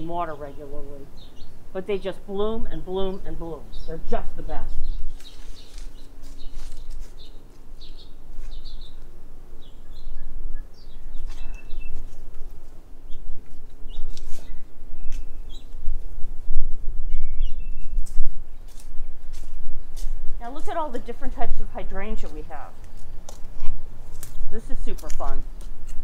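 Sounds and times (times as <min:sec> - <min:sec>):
small birds chirping: 0:00.1 - 0:15.8, 0:17.1 - 0:20.2.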